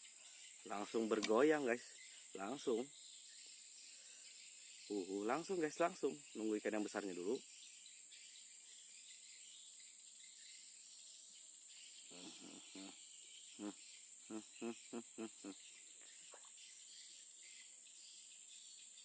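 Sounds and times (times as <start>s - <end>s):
crickets and insects chirring: 0.0s - 19.0s
short pitched calls: 12.1s - 16.6s.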